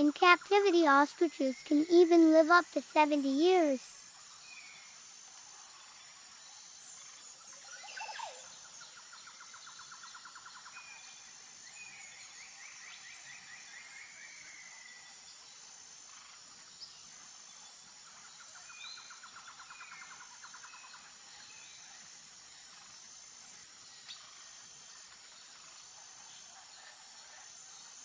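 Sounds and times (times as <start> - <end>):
bird chirps and trills: 0.0 - 4.9
insect hiss: 0.0 - 28.0.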